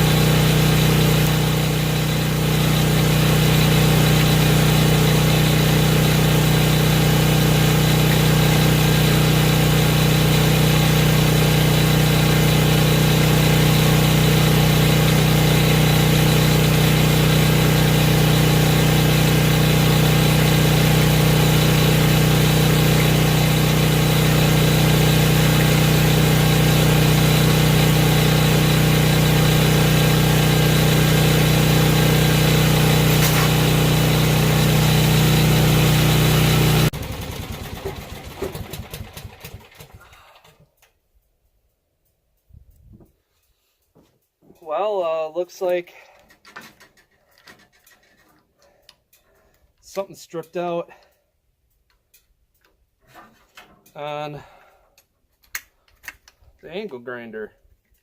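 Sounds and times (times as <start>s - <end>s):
angle grinder running: 0.0s - 38.8s.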